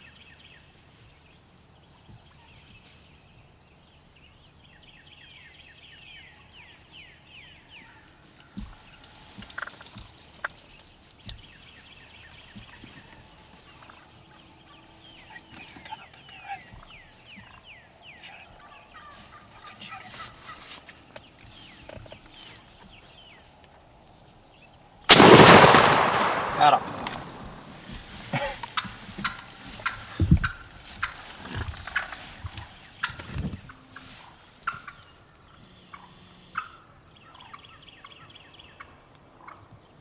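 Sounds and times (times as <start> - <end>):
loud shotgun blast: 25.1 - 28.0.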